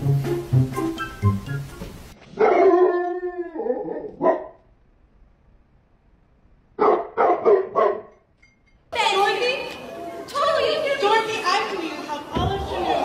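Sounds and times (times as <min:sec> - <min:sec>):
dog barking: 0:02.4 - 0:03.0, 0:04.0 - 0:04.6, 0:06.8 - 0:08.2
dog yelping: 0:02.4 - 0:04.6, 0:06.8 - 0:08.1
dog howling: 0:02.5 - 0:04.4.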